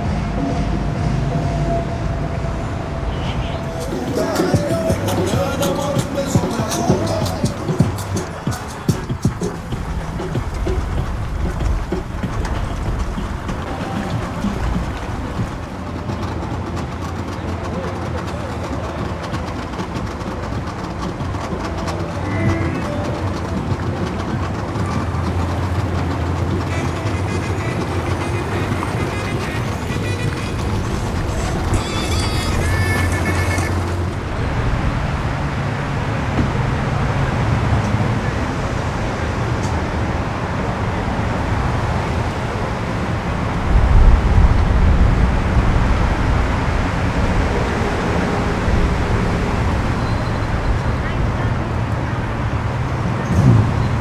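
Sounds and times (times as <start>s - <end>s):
heavy low rumble: 0.0s - 16.2s, 50.5s - 54.0s
low engine rumble: 0.0s - 54.0s.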